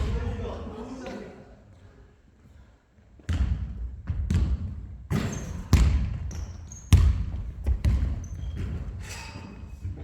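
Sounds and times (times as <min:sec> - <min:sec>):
basketball bouncing on gym floor: 0:03.2 - 0:09.0.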